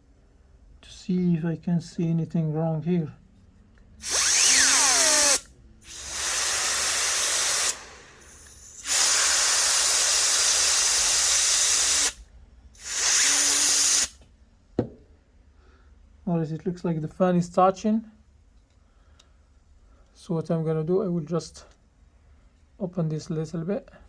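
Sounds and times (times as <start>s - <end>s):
falling fan whine: 4.0s - 9.6s
canned air hissing: 4.0s - 12.2s, 12.8s - 14.2s.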